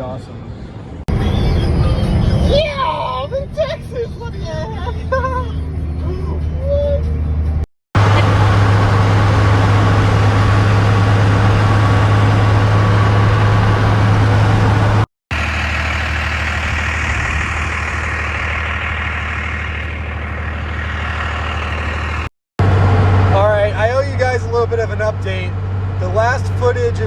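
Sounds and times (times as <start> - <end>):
truck engine and road drone: 0.0 - 27.0.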